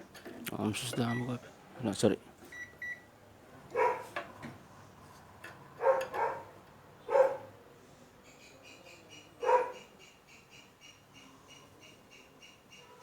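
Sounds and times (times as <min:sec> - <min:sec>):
dog barking: 0:03.7 - 0:04.1, 0:05.8 - 0:06.5, 0:07.1 - 0:07.5, 0:09.4 - 0:09.9.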